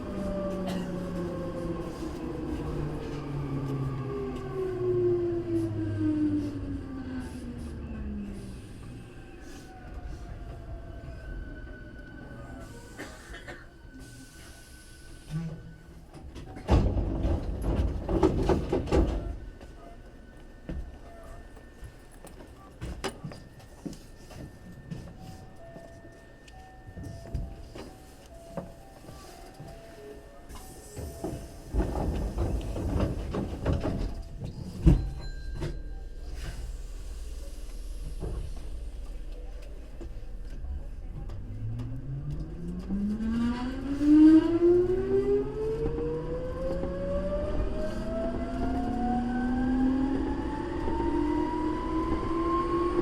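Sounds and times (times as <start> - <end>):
train low running rumble: 0.0 - 53.0
train doors clattering: 15.4 - 19.8, 20.6 - 42.4.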